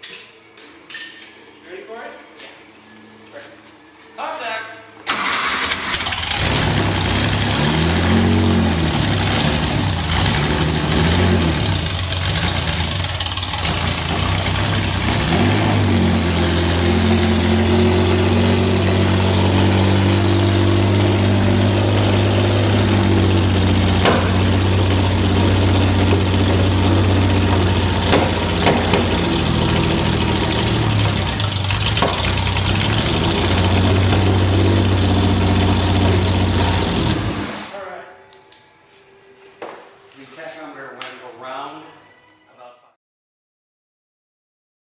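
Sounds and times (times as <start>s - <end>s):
racing engine revving and idling: 5.2s - 37.7s.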